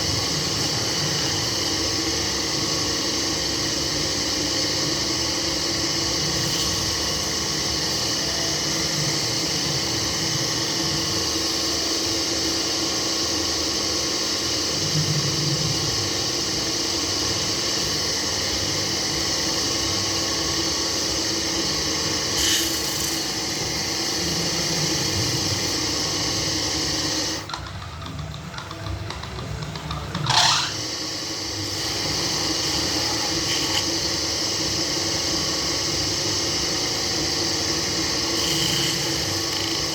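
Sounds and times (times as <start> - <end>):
turning tool hissing on wood: 0.0 - 27.5, 30.2 - 39.9
lathe motor hum: 0.0 - 39.9
tool scraping wood: 22.4 - 23.4, 31.7 - 34.0, 38.3 - 39.9.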